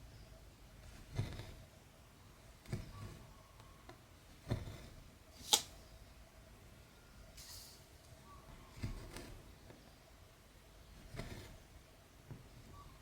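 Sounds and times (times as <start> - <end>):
needle pulling thread through cloth: 0.1 - 1.8, 2.4 - 5.8, 7.4 - 10.0, 10.8 - 13.0.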